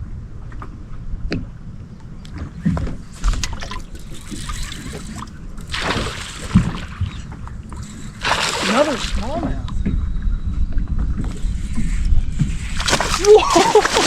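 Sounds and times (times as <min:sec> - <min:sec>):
water sloshing around a boat: 0:01.8 - 0:09.8, 0:11.7 - 0:14.0
loud splash: 0:05.7 - 0:06.9, 0:08.2 - 0:09.2, 0:12.8 - 0:14.0.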